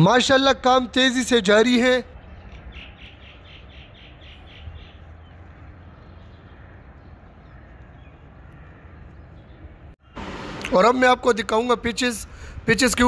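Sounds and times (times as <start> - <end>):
bird chirping: 2.3 - 10.2.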